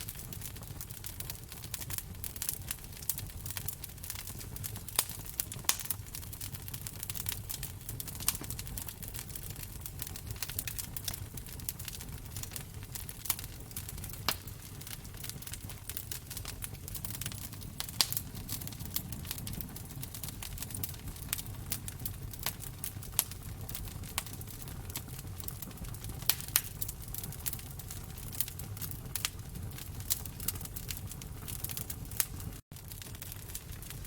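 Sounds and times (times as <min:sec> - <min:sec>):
low rumble of flame: 0:00.0 - 0:34.0
wood fire crackling and popping: 0:00.0 - 0:34.0.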